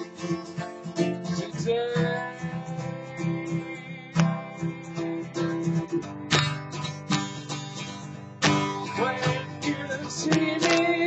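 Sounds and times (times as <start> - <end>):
person singing: 0.0 - 6.3, 8.5 - 11.0
acoustic guitar strumming: 0.0 - 11.0.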